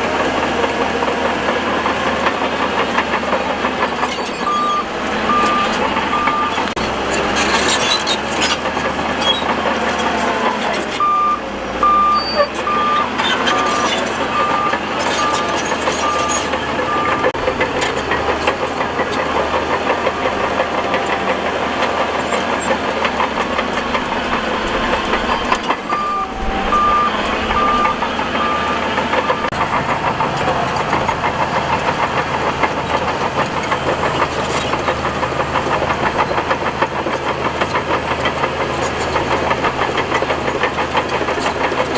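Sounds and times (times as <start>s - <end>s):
bulldozer engine running: 0.0s - 41.9s
reversing alarm beeping: 3.9s - 6.8s, 11.0s - 17.6s, 21.4s - 29.6s.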